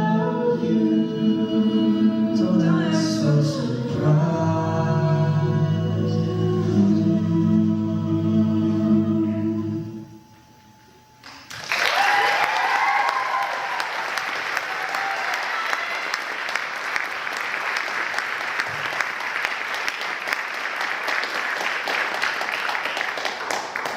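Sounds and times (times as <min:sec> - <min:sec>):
ensemble holding chord: 0:00.0 - 0:11.3
audience applause: 0:11.5 - 0:23.9
cheering whoops: 0:11.6 - 0:16.6.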